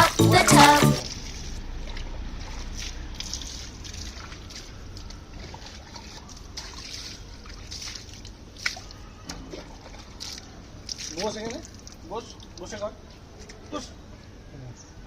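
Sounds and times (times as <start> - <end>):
water splashes: 0.0 - 13.6
water trickling and sloshing: 0.6 - 13.9.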